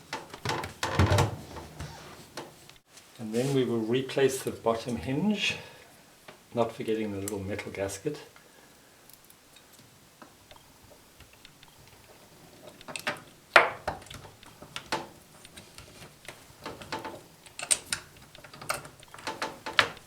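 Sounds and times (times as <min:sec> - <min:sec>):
metal clicks and knocks: 0:10.5 - 0:20.0.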